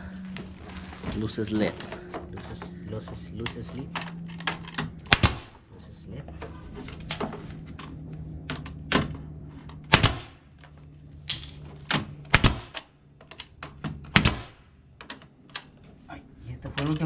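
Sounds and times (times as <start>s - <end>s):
low hum: 0.0s - 17.0s
nail gun firing snaps: 5.0s - 5.5s, 9.9s - 10.4s, 11.3s - 13.5s, 14.1s - 15.7s.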